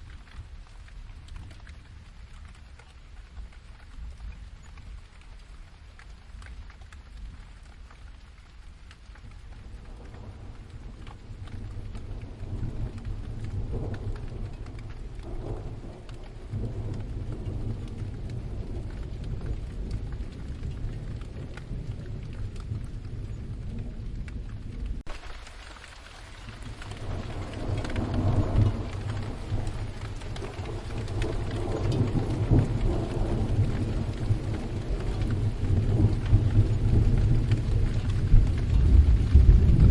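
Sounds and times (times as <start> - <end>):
steady rain falling: 0.0 - 39.9
deep rolling thunder: 9.7 - 25.0, 26.4 - 39.9.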